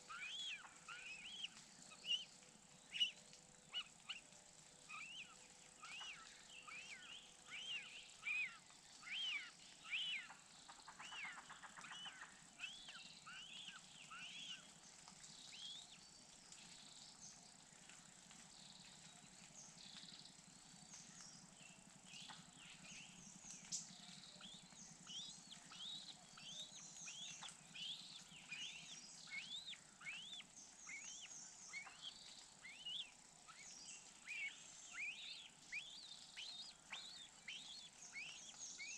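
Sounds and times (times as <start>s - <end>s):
high arching bird chirps: 24.5s - 38.9s.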